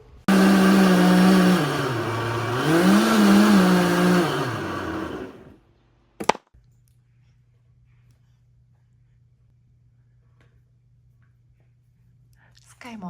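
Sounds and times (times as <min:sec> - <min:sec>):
blender motor whirring: 0:00.0 - 0:05.6.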